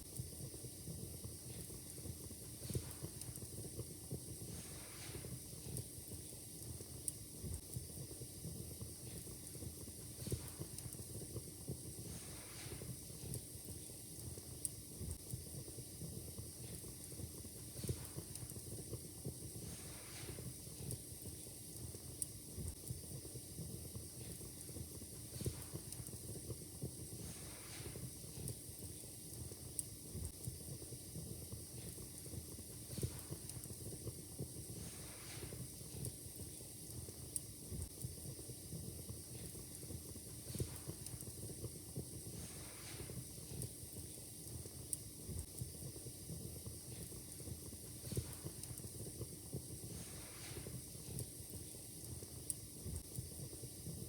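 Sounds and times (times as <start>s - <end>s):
fire crackling: 0.0s - 54.0s.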